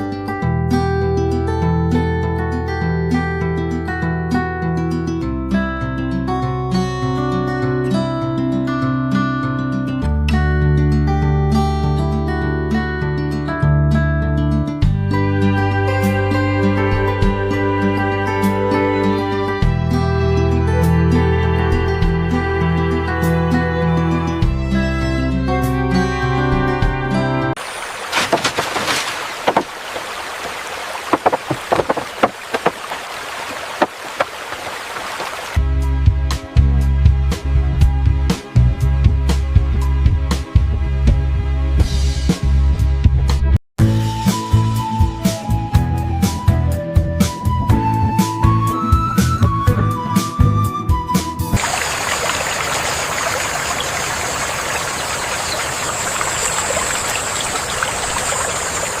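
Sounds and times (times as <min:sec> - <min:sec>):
stream water rushing: 0:27.6 - 0:35.6, 0:51.6 - 0:59.0
watery hiss: 0:51.6 - 0:59.0.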